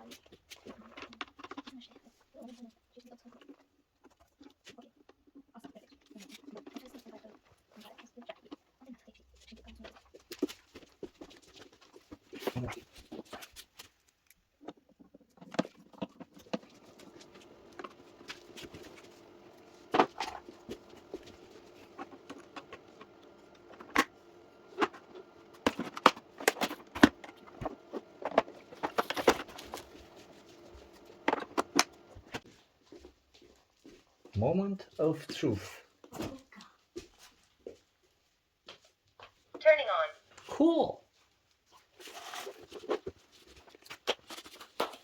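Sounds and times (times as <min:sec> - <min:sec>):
plastic parts clicking and knocking: 0:00.0 - 0:02.1, 0:09.6 - 0:32.5.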